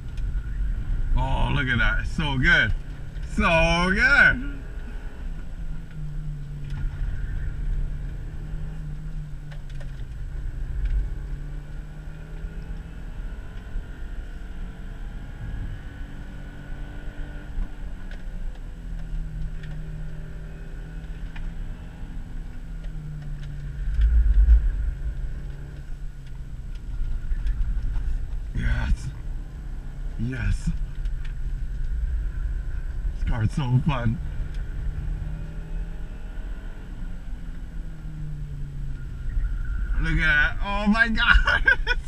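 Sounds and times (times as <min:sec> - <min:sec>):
heavy low rumble: 0:00.0 - 0:08.4, 0:22.4 - 0:35.3
car engine rising and falling: 0:00.0 - 0:42.0
road rumble: 0:00.0 - 0:42.0.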